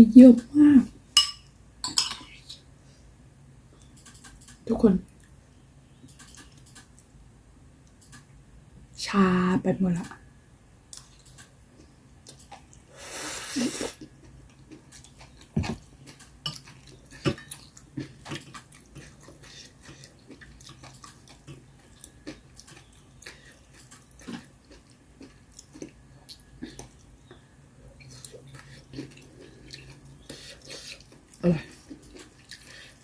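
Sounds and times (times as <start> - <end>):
person chewing: 11.8 - 27.3, 28.0 - 33.0.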